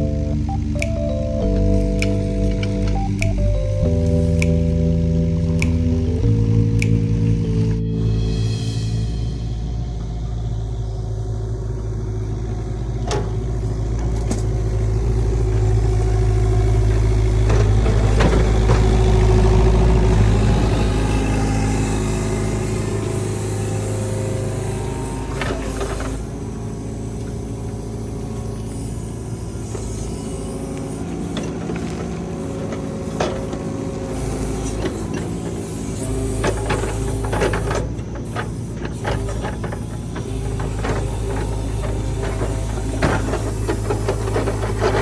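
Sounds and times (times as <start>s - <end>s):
engine humming: 0.0s - 45.0s
sharp clicks: 0.5s - 7.7s.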